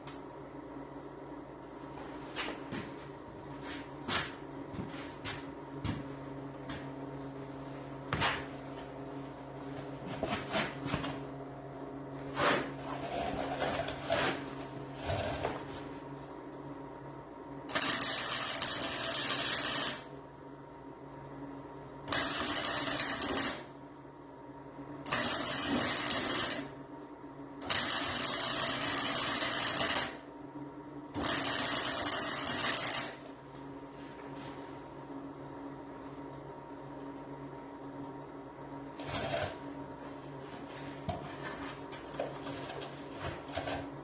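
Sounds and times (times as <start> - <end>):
faint steady hum: 0.0 - 44.0
arc welding crackling buzz: 17.7 - 20.1, 22.1 - 23.7, 25.0 - 26.8, 27.6 - 30.3, 31.1 - 33.3.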